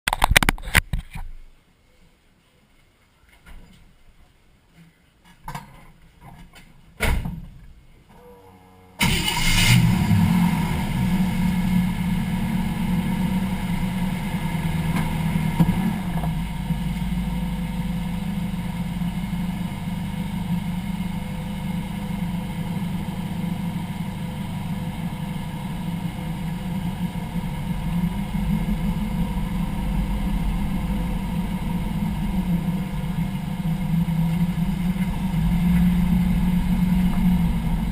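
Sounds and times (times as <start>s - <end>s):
car engine starting and running: 8.3s - 37.9s.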